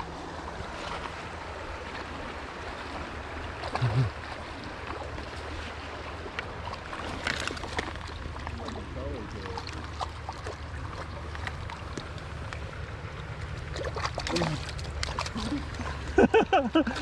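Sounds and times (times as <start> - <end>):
stream flowing: 0.0 - 17.0.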